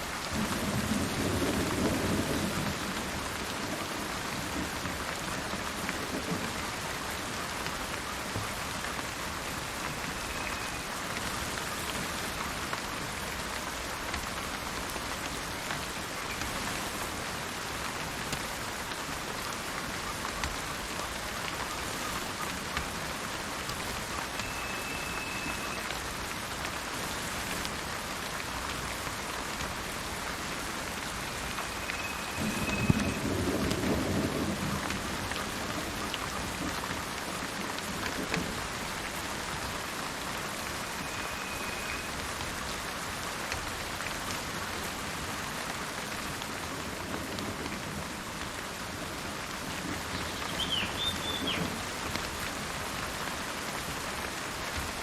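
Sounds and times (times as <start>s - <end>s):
rain falling: 0.0s - 55.0s
thunder rumbling: 0.4s - 6.6s, 32.2s - 36.6s.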